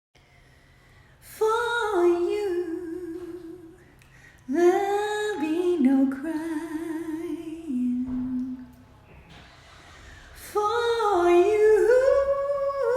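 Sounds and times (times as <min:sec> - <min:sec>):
woman singing unaccompanied: 0:01.2 - 0:08.7, 0:10.4 - 0:12.9.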